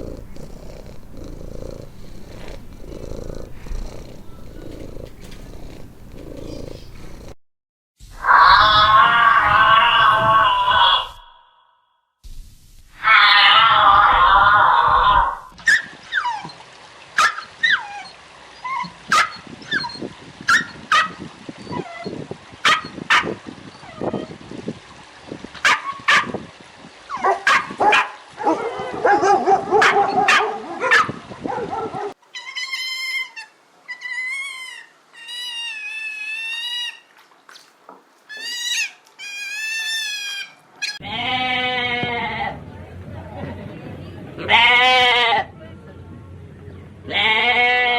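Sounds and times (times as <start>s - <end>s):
dog whining: 0.0s - 7.4s
dog yelping: 17.2s - 19.9s, 20.5s - 22.1s, 27.2s - 37.0s.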